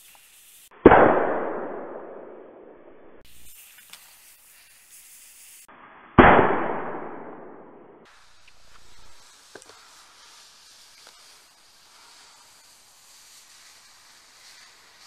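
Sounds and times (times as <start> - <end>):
slowed deep firecracker bangs: 0.7 - 2.8, 6.2 - 9.2.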